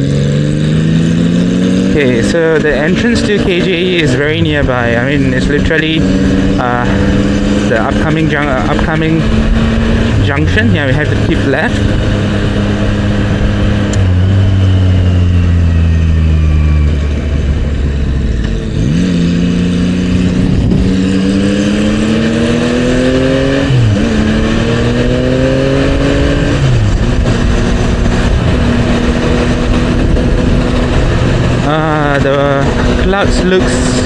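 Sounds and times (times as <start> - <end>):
motorcycle engine accelerating: 0.0 - 34.0
wind rushing: 8.6 - 34.0.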